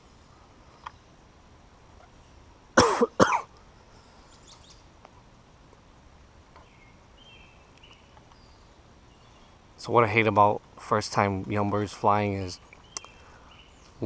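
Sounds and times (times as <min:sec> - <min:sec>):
man coughing: 0:02.8 - 0:03.5.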